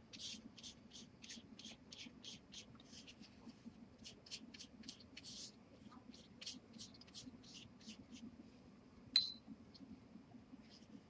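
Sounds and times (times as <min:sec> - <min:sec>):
oil pastel scratching on paper: 0:00.0 - 0:08.3.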